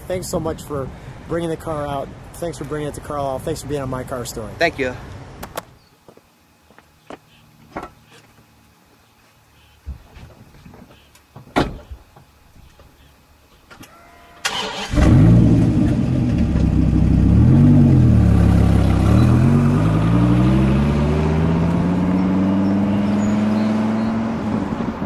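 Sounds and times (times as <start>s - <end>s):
car engine starting and revving: 14.4s - 25.0s
car accelerating away: 14.5s - 25.0s.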